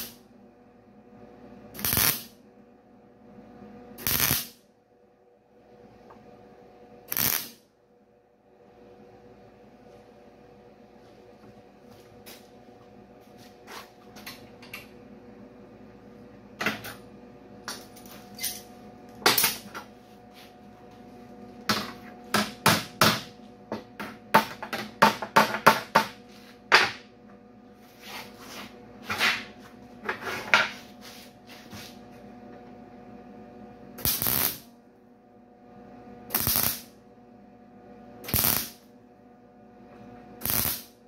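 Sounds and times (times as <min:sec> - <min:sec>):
faint hum: 0:00.0 - 0:41.0
metal parts and tools clinking: 0:17.7 - 0:18.7.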